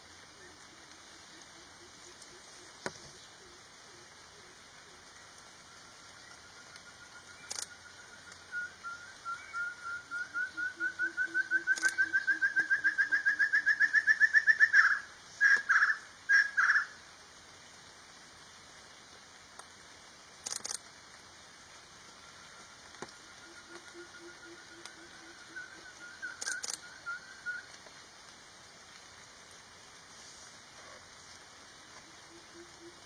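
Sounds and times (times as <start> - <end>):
faint clicks: 6.3 - 8.4, 11.7 - 12.0, 20.4 - 21.2, 26.3 - 26.9
bird whistling rising notes: 8.2 - 14.8.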